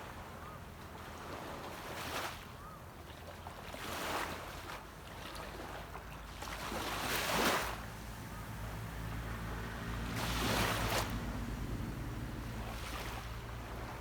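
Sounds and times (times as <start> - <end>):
distant boat engine hum: 0.0 - 14.0
waves washing onto beach: 3.6 - 14.0.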